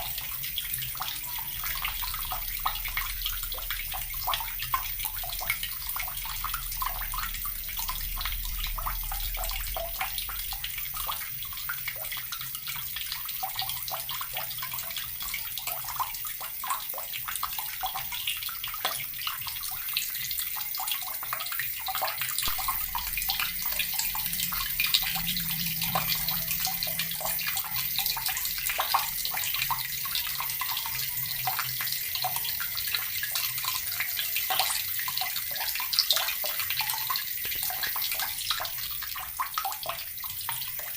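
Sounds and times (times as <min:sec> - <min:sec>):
tap water running and splashing: 0:00.0 - 0:40.9.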